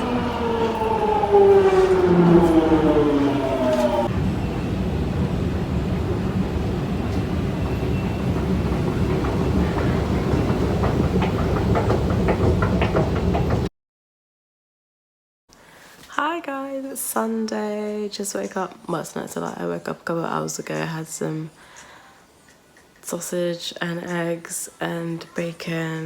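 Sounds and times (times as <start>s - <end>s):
wheels clicking: 0.0s - 4.1s
motor whine: 0.0s - 5.7s
train rumbling on track: 0.0s - 13.7s.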